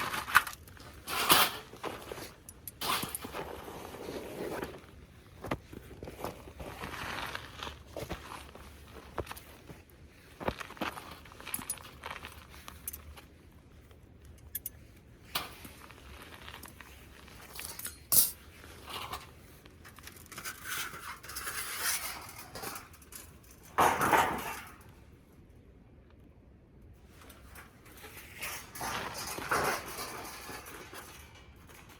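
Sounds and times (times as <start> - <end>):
scraping rustle: 0.0 - 13.4, 15.2 - 24.9, 27.0 - 31.9
rustling: 0.0 - 23.6.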